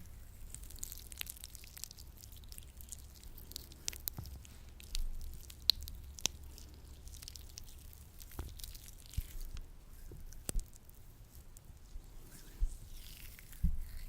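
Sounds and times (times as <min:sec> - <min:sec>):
gloved hands squishing lotion: 0:00.0 - 0:14.0
sticky snaps and clicks: 0:00.4 - 0:11.7.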